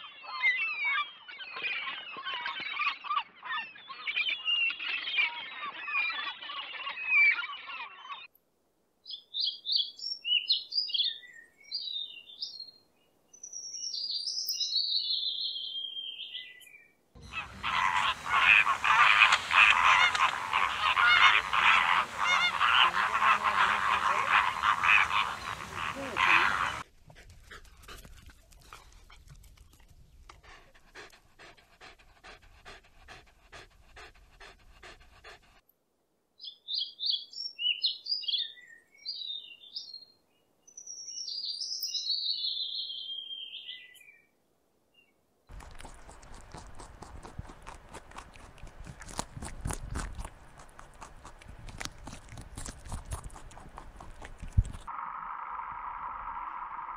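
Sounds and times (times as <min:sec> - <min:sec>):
robin singing: 0:09.0 - 0:26.8, 0:36.4 - 0:44.3
flamingos honking and gabbling: 0:17.2 - 0:26.8.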